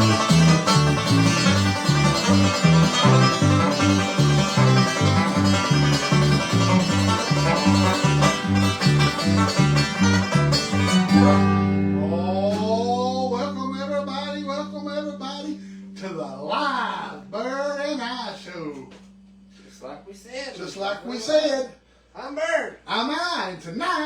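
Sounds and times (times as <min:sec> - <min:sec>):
bouncing bass line: 0:00.0 - 0:17.7
fast bluegrass music: 0:00.0 - 0:17.8
banjo picking: 0:00.0 - 0:18.4.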